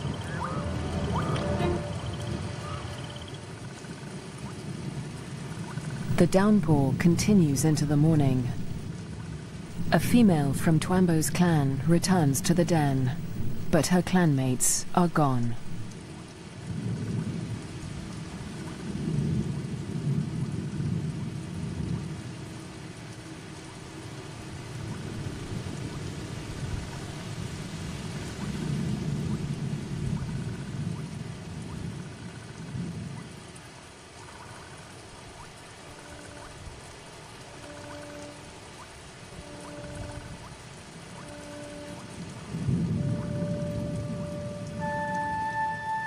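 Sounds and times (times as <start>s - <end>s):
heavy rain: 0.0s - 46.0s
faint held tones: 41.2s - 46.0s.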